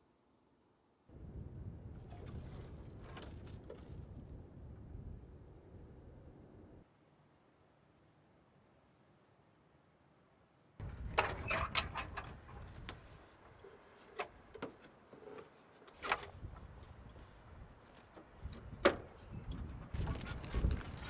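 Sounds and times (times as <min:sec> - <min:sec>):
wind rumbling on microphone: 0:01.1 - 0:06.8, 0:10.8 - 0:13.3, 0:16.0 - 0:21.0
sharp knocks and rattles: 0:10.8 - 0:12.9.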